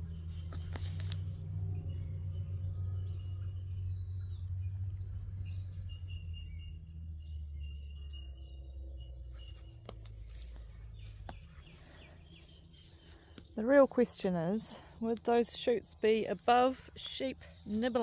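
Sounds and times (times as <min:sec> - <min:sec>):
steady low hum: 0:00.0 - 0:18.0
birds chirping and calling: 0:09.3 - 0:18.0.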